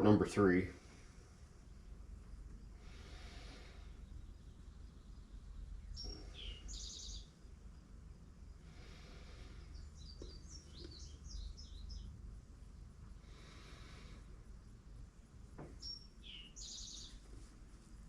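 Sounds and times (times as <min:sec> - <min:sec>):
steady low hum: 0:00.0 - 0:18.0
small bird chirping: 0:01.6 - 0:07.9, 0:09.3 - 0:14.9, 0:15.6 - 0:17.8.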